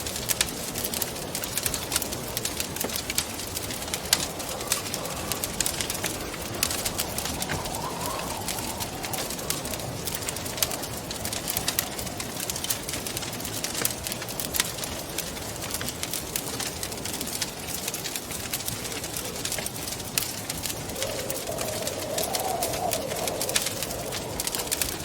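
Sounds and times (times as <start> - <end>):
rushing wind: 0.0 - 15.8, 18.2 - 25.0
wood fire crackling: 0.0 - 25.0
soft wavering moan: 3.9 - 12.2, 20.7 - 25.0.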